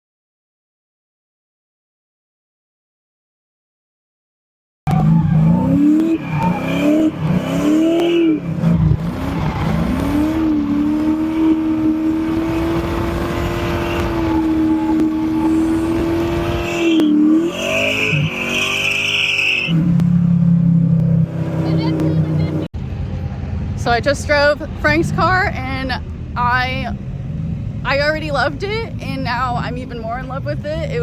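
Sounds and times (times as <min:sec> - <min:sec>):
tyre squeal: 0:04.9 - 0:08.4, 0:13.5 - 0:19.8
car engine revving: 0:04.9 - 0:31.0.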